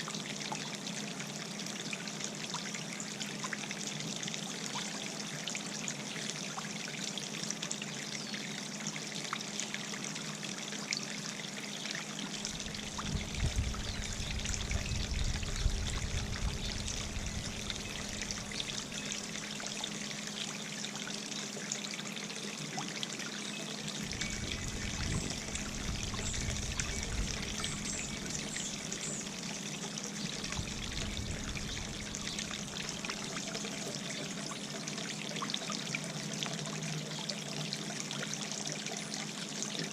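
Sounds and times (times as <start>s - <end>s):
fountain water trickling: 0.0s - 39.9s
wind rumbling on microphone: 12.6s - 18.6s, 24.0s - 28.9s, 30.3s - 32.8s.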